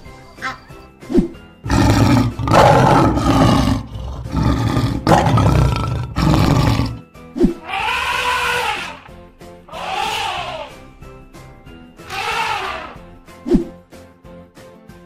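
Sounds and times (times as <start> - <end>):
background music: 0.0 - 15.0
lion roaring: 1.7 - 7.0, 7.6 - 9.1
pitched call rising and falling: 9.7 - 10.8, 12.1 - 13.0.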